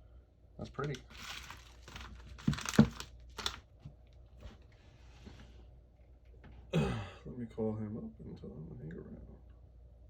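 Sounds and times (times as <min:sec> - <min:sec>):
packaging crinkling and rustling: 0:00.8 - 0:04.7.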